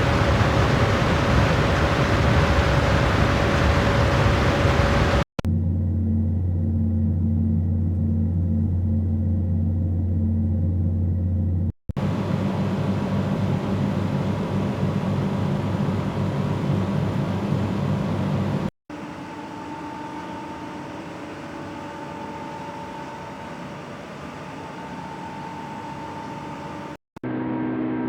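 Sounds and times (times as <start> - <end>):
rough machine whir: 0.0 - 5.3
machine humming: 0.0 - 27.0
machine whir with whine: 0.0 - 28.0.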